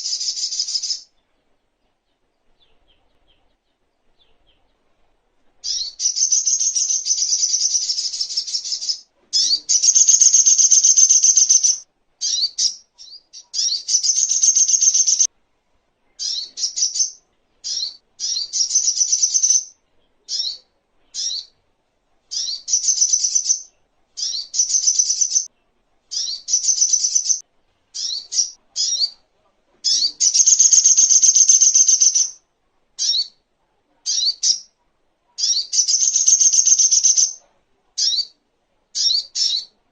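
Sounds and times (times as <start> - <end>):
bird trilled chattering song: 0.0 - 1.1, 5.6 - 15.3, 16.2 - 19.7, 20.3 - 20.6, 21.2 - 21.5, 22.3 - 25.5, 26.1 - 27.4, 28.0 - 29.2, 29.9 - 32.4, 33.0 - 33.4, 34.1 - 34.7, 35.4 - 37.4, 39.0 - 39.7.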